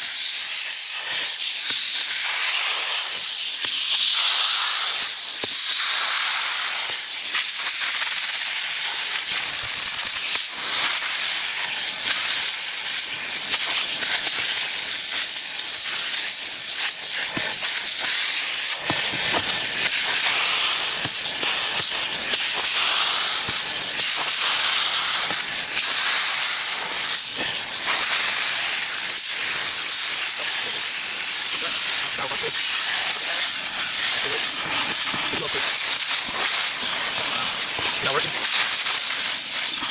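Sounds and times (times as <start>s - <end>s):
pressure washer jet hissing: 9.9s - 39.9s.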